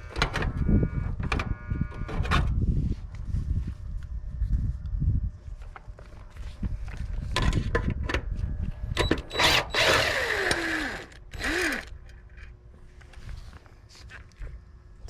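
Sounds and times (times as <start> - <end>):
power drill running: 9.2 - 12.0.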